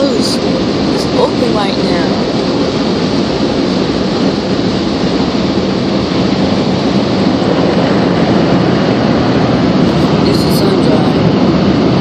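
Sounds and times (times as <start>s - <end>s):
car wash machinery rushing: 0.0s - 12.0s.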